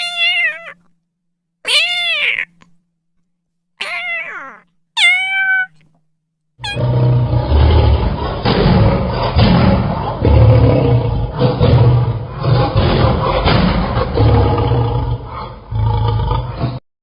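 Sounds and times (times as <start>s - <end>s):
cat meowing: 0.0s - 0.9s, 1.6s - 2.7s, 3.8s - 5.9s, 6.6s - 6.8s.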